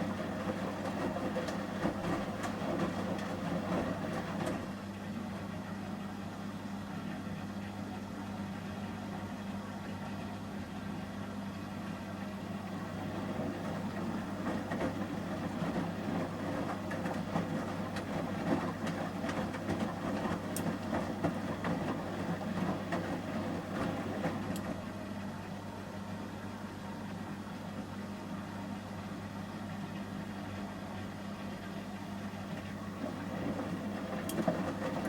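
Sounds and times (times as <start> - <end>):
wet laundry tumbling in drum: 0.0 - 4.9, 12.4 - 25.4, 31.6 - 35.0
washing machine hum: 0.0 - 35.0.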